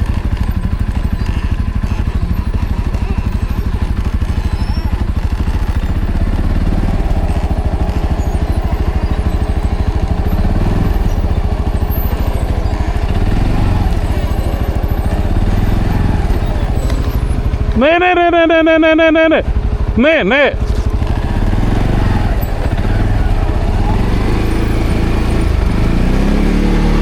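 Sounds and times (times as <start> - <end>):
atv engine chugging: 0.0 - 27.0.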